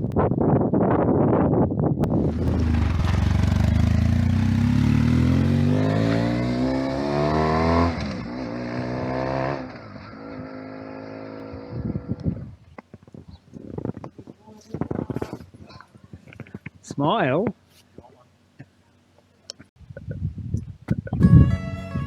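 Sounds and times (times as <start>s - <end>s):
motorcycle engine accelerating: 2.0s - 12.6s.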